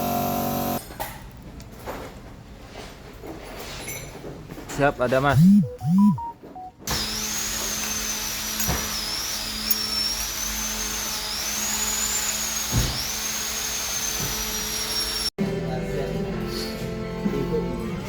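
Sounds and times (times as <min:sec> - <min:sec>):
power tool whining: 0:00.0 - 0:00.8, 0:06.9 - 0:15.3.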